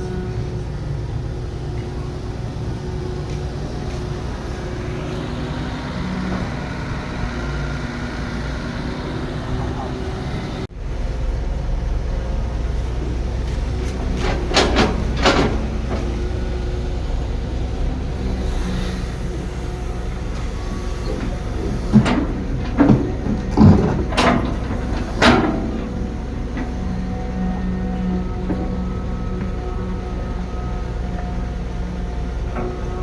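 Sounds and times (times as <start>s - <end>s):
heavy machinery rumbling: 0.0s - 33.0s
metallic clanks and knocks: 13.8s - 16.4s, 21.1s - 27.0s.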